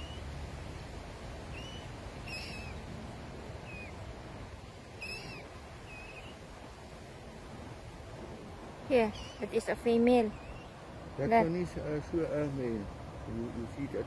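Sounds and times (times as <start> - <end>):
bird squeaky calls: 1.6 - 2.8, 3.6 - 4.0, 5.0 - 6.4, 10.2 - 10.8.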